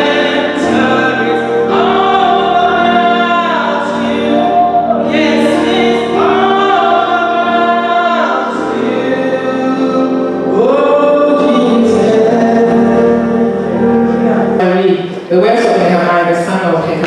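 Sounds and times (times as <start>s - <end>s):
gospel choir singing: 0.0s - 15.3s
musical accompaniment: 0.0s - 17.0s.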